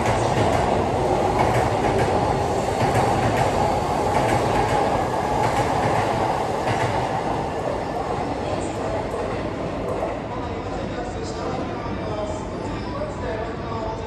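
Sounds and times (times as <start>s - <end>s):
train wheels rumbling on rail: 0.0s - 10.6s.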